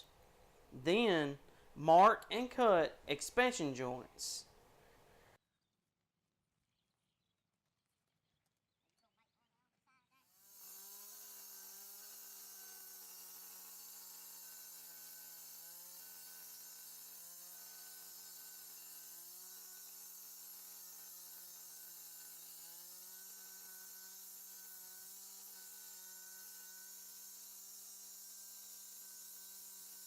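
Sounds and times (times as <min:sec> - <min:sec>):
power saw cutting concrete: 0:10.3 - 0:30.0.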